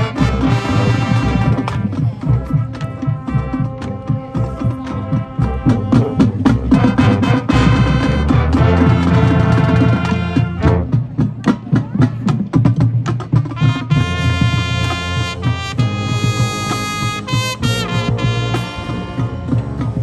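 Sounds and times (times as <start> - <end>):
brass chords: 0.0 - 11.4, 13.4 - 20.0
marching band drum hits: 0.0 - 20.0.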